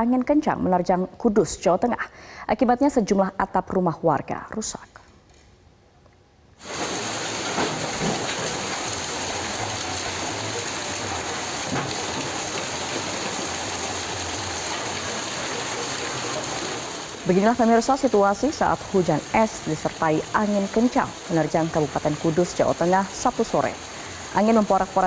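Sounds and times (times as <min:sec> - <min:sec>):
heavy rain and hail pelting: 0:06.6 - 0:25.0.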